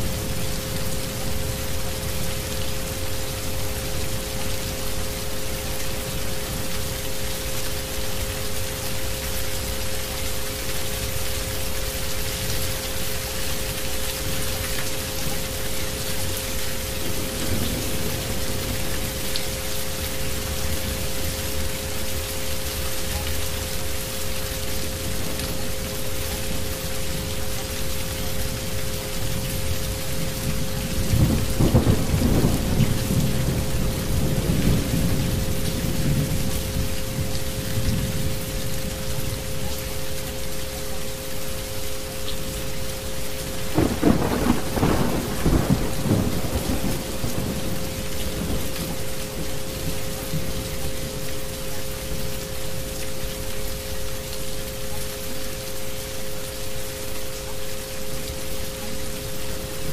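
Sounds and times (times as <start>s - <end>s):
rain on a hard surface: 0.0s - 59.9s
thunder rumble: 17.0s - 19.3s, 30.5s - 38.4s, 43.8s - 50.6s.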